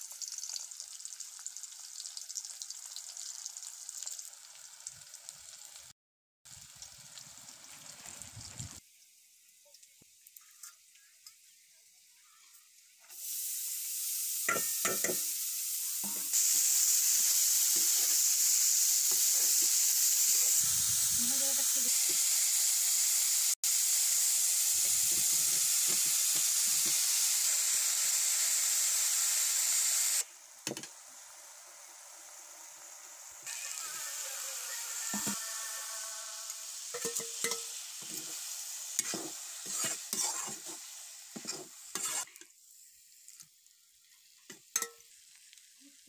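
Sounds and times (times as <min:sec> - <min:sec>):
seeds sizzling in hot oil: 0:00.0 - 0:46.0
steel spatula scraping a pan: 0:17.2 - 0:18.2, 0:33.5 - 0:42.5.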